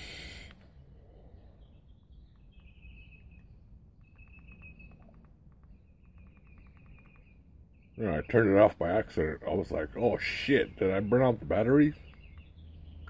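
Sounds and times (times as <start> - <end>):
faint bird trills: 0.0 - 9.1
low background rumble: 0.0 - 13.0.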